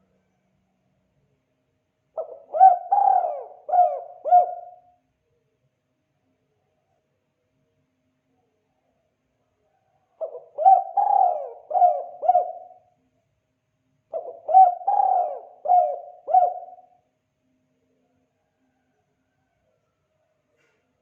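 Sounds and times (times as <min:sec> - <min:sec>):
dove cooing: 0:02.2 - 0:04.9, 0:10.2 - 0:12.9, 0:14.1 - 0:17.0.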